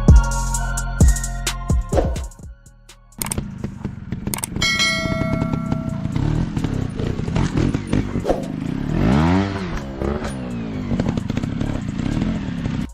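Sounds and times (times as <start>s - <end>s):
dirt bike engine revving: 3.2s - 12.9s.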